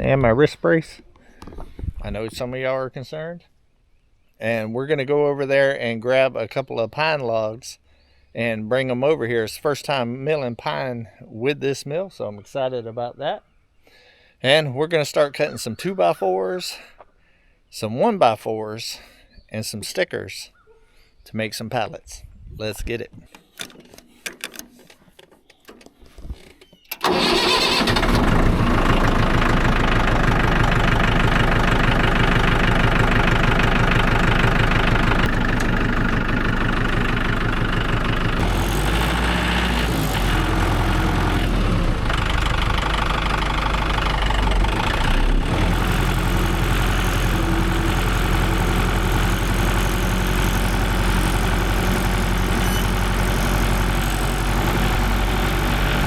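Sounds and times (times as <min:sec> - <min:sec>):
tractor engine starting and running: 0:23.6 - 0:56.0.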